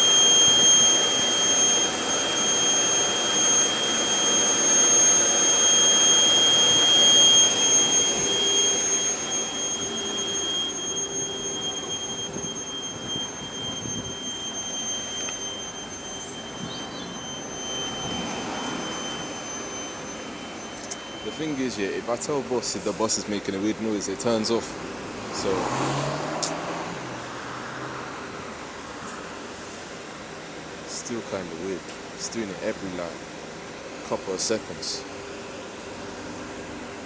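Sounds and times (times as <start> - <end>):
high-pitched whine: 0.0 - 37.0
bus engine and road noise: 24.2 - 30.9.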